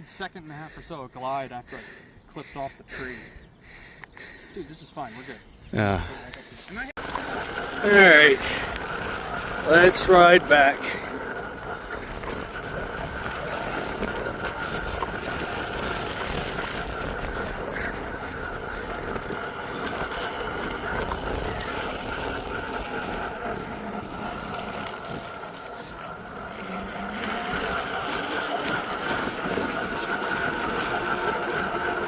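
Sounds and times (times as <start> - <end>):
steady high whine: 5.8 - 32.0
rattling rumble: 7.0 - 32.0
wind buffeting microphone: 7.0 - 32.0.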